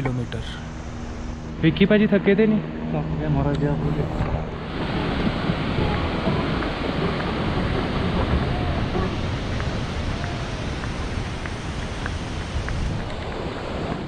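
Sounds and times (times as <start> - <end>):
mountain stream rushing: 4.2 - 14.0.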